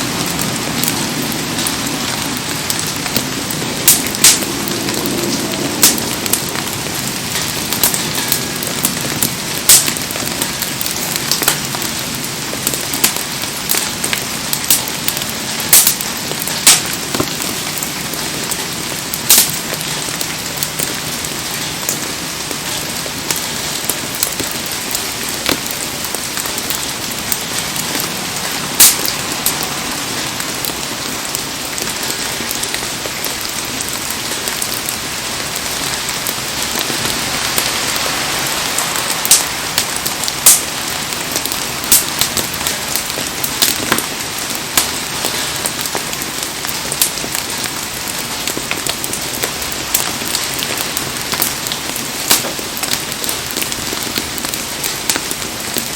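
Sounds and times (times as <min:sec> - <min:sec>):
heavy rain falling: 0:00.0 - 0:55.9
sharp pops: 0:03.9 - 0:04.5.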